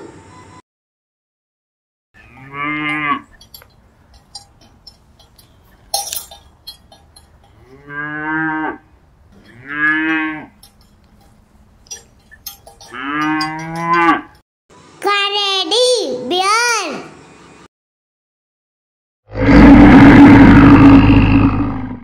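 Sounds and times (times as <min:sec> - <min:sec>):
cattle mooing: 0:02.2 - 0:05.5, 0:06.2 - 0:11.3, 0:11.9 - 0:14.4.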